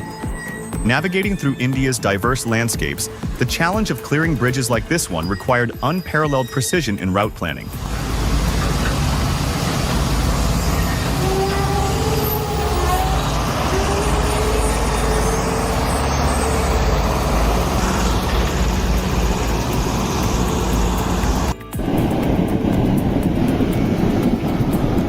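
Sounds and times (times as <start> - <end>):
truck diesel engine rumbling: 0.0 - 6.0, 7.6 - 25.0
faint whining tones: 7.7 - 22.2.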